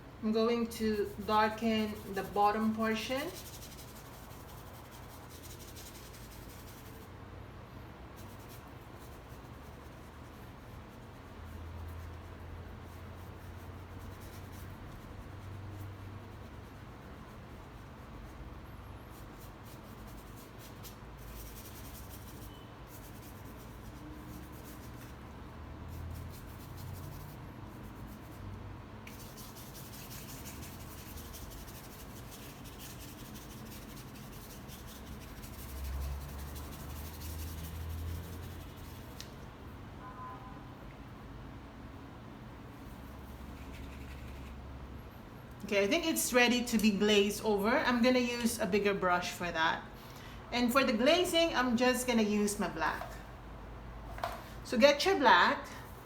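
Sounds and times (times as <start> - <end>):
paintbrush rubbing on surface: 0.3 - 7.2, 8.2 - 18.4, 19.1 - 39.4, 42.8 - 44.7.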